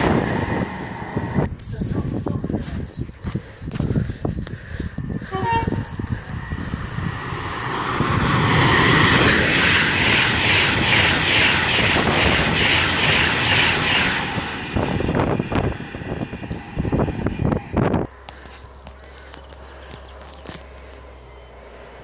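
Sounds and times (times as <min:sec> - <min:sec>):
train rushing past: 0:00.0 - 0:01.5, 0:05.0 - 0:18.8.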